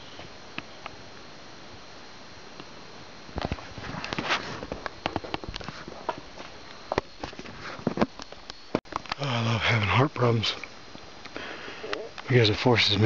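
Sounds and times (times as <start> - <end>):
person breathing and sniffing: 11.3 - 12.1.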